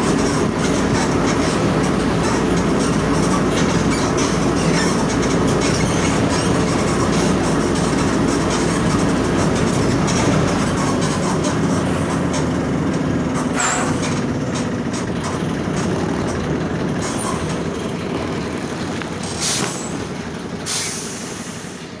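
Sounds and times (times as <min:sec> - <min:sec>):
bus diesel engine running: 0:00.0 - 0:22.0
air hisses: 0:19.2 - 0:22.0.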